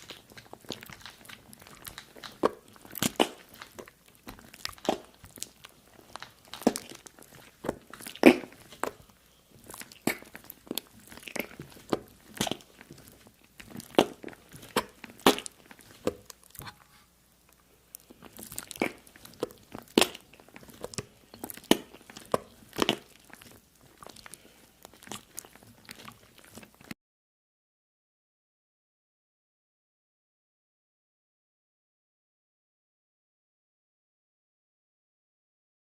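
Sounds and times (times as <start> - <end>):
sharp crunches and clicks: 0.0 - 16.9, 17.5 - 26.9.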